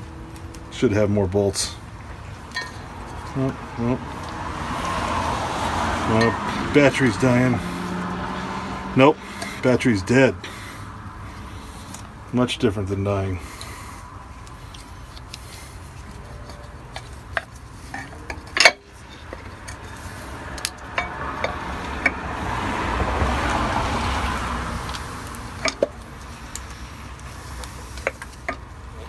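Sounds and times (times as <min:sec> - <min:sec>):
metal tools clinking: 0:00.4 - 0:04.4, 0:06.1 - 0:07.6, 0:14.6 - 0:22.2, 0:24.8 - 0:29.0.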